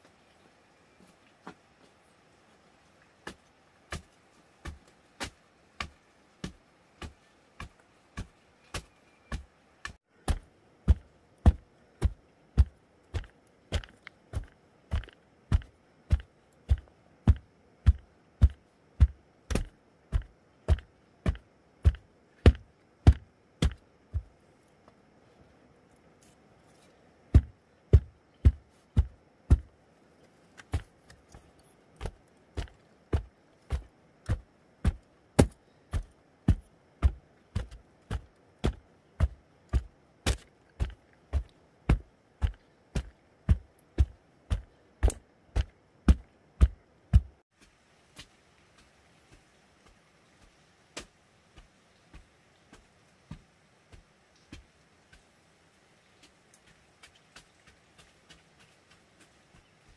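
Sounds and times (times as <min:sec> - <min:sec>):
blade chopping with dull thuds: 0:03.2 - 0:24.3, 0:27.3 - 0:29.7, 0:32.0 - 0:48.3.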